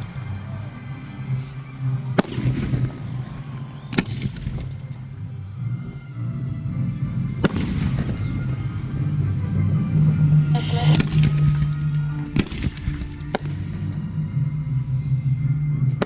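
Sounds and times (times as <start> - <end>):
fireworks bangs: 2.2 - 5.4, 7.3 - 14.4.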